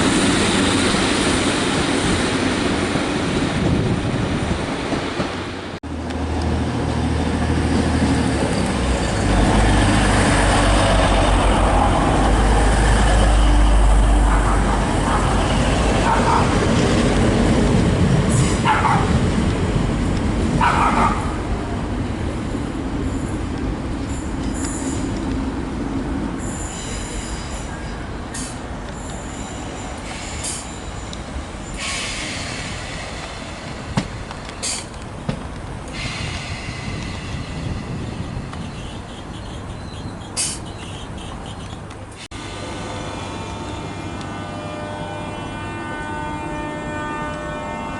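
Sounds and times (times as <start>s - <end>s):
train rumbling through station: 0.0s - 47.9s.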